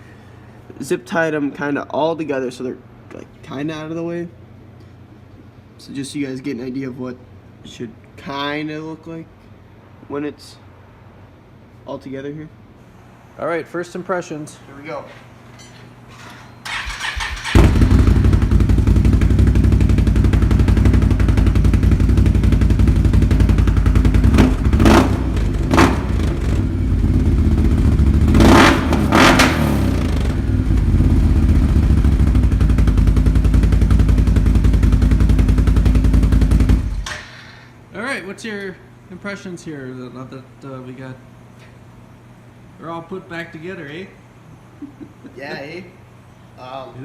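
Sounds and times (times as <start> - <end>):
engine starter cranking: 16.6 - 18.1
engine revving: 16.8 - 37.0.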